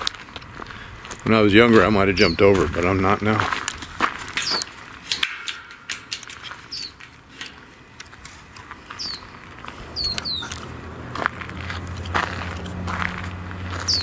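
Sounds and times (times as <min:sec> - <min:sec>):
faint footsteps clicking: 0:00.0 - 0:14.0
bird chirping: 0:04.3 - 0:04.8, 0:05.4 - 0:07.1, 0:08.8 - 0:10.7, 0:13.7 - 0:14.0.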